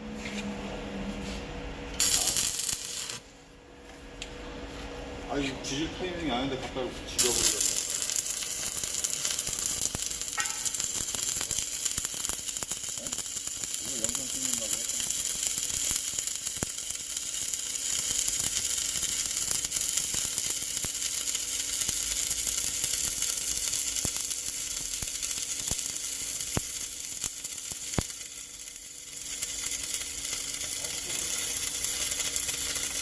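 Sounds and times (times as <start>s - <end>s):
welding arc crackling and sizzling: 1.9s - 3.4s, 5.1s - 33.0s
sharp pops: 7.2s - 13.7s.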